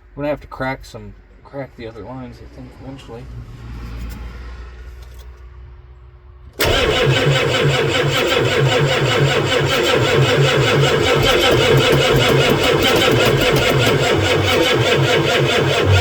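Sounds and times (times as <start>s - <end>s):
diesel engine starter cranking: 6.6s - 16.0s.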